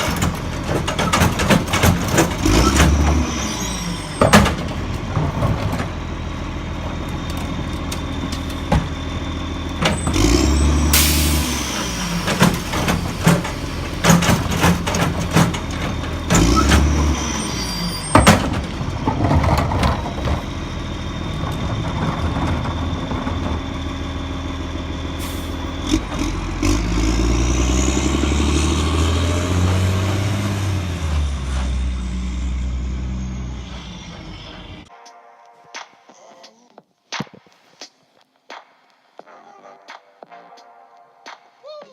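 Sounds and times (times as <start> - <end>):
cart clanking and knocking: 0.0 - 32.2
garbage truck engine revving: 0.0 - 34.9
sharp air hiss: 10.9 - 14.7, 25.2 - 25.7.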